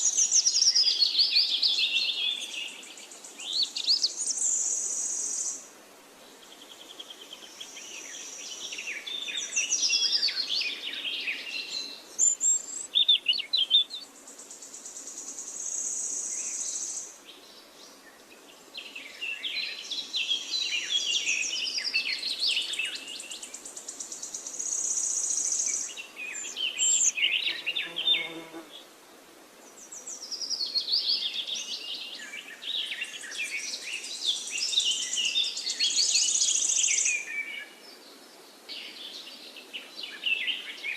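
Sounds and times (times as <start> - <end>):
songbirds warbling: 6.4 - 28.6.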